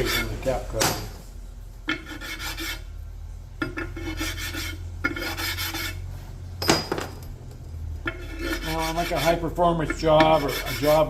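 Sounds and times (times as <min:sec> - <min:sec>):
metal scraping on abrasive: 0:00.0 - 0:00.8, 0:01.8 - 0:02.9, 0:03.6 - 0:06.4, 0:08.0 - 0:11.0
sharp metal clack: 0:06.6 - 0:07.6.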